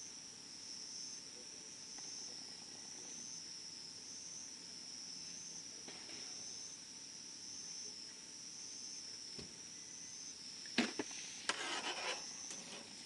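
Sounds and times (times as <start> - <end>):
insect chorus trilling: 0.0 - 13.0
campfire pops: 10.7 - 11.6.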